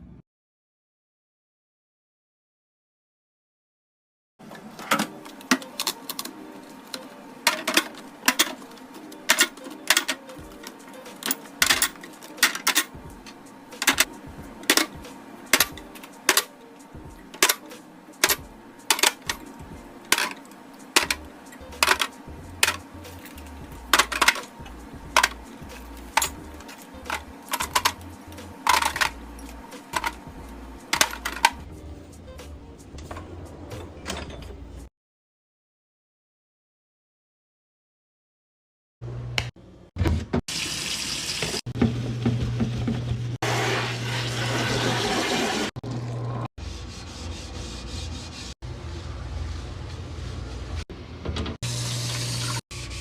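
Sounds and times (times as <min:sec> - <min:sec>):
containers clacking in fridge: 0:07.5 - 0:08.6, 0:21.8 - 0:24.5, 0:25.2 - 0:25.4, 0:27.0 - 0:28.0, 0:28.6 - 0:29.2, 0:29.9 - 0:30.2.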